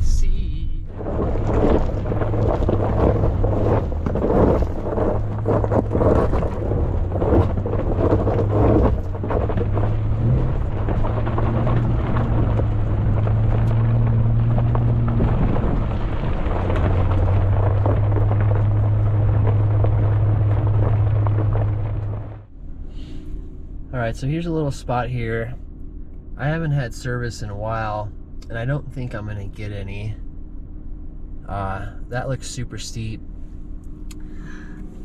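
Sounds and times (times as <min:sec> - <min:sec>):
vehicle engine running: 0:00.0 - 0:35.0
knocks and rattles from bumps: 0:00.9 - 0:22.4.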